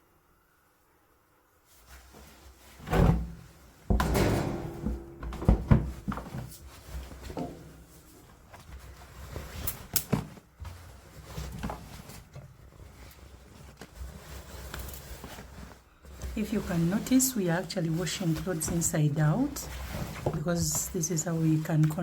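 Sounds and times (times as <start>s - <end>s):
loud thump: 2.9s - 6.4s
objects knocking and clattering: 3.0s - 8.3s.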